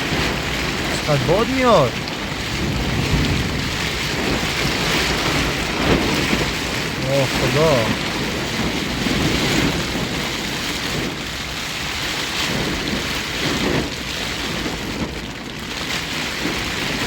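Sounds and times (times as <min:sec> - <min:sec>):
wind gusting: 0:00.0 - 0:11.4
heavy rain on a tent: 0:00.0 - 0:17.0.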